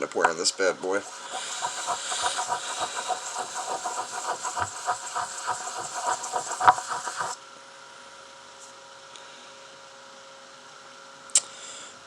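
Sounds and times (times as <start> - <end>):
sandpaper scratching metal: 1.0 - 7.4.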